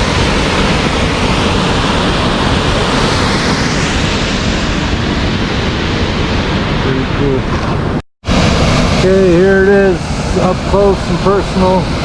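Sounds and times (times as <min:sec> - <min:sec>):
waterfall rushing: 0:08.3 - 0:12.0.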